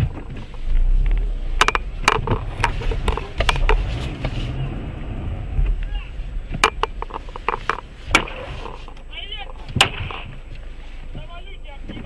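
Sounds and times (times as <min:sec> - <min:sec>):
car engine and road rumble: 0:00.0 - 0:12.0
sharp knocks: 0:06.5 - 0:10.4.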